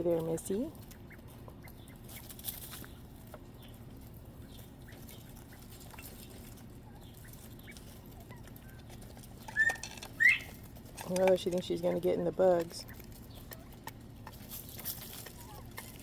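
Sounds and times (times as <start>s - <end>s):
quail peeping: 0.0s - 16.0s
scratching and pecking in dirt: 0.0s - 16.0s.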